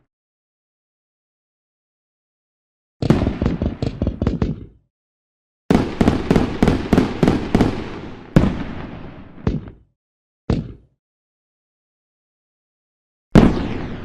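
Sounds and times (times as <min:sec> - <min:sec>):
fireworks bangs and crackles: 0:03.0 - 0:04.7, 0:05.7 - 0:09.9, 0:13.3 - 0:14.0.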